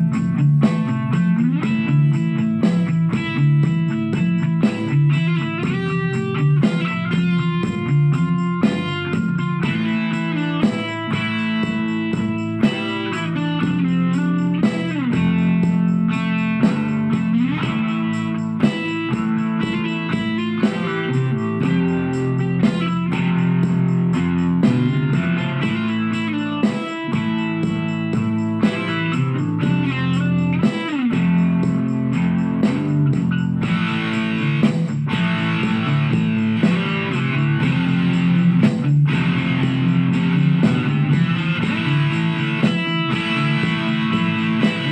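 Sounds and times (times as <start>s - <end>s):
electric guitar melody: 0.0s - 44.9s.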